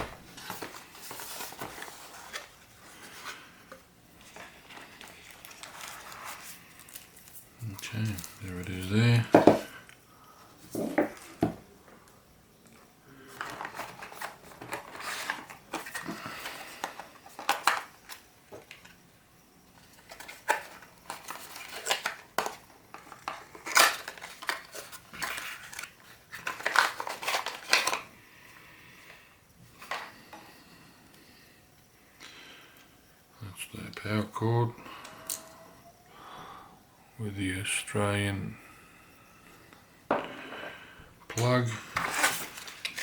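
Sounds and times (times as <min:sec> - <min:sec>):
packaging rustling and crinkling: 0:00.2 - 0:03.6, 0:04.2 - 0:09.6, 0:13.3 - 0:18.9, 0:19.8 - 0:28.1, 0:41.5 - 0:43.0.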